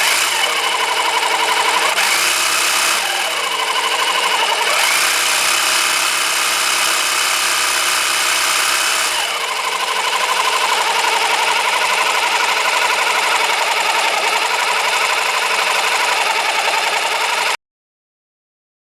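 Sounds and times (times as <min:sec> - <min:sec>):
electric drill motor whirring: 0:00.0 - 0:17.6.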